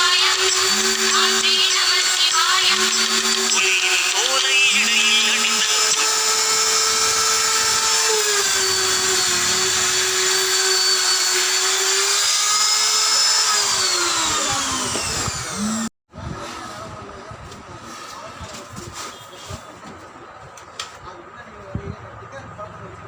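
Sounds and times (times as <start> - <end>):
power tool motor whining: 0.0 - 15.9.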